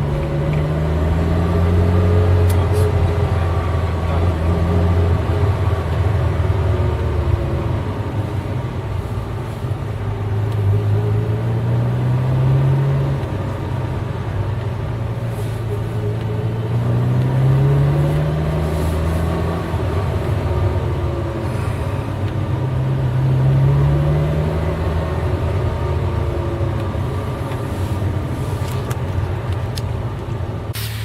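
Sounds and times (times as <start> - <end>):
car engine accelerating: 0.0 - 30.7.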